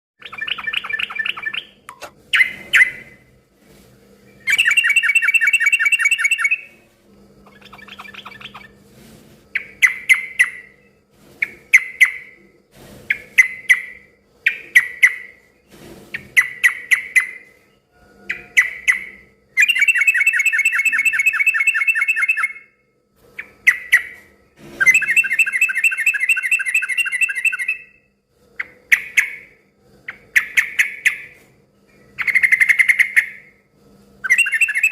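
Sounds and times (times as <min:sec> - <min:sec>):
bulbul singing: 0:00.2 - 0:03.2, 0:04.3 - 0:06.7, 0:07.4 - 0:08.8, 0:18.3 - 0:22.7, 0:24.8 - 0:28.0, 0:34.2 - 0:34.9
faint steady hum: 0:00.2 - 0:34.9.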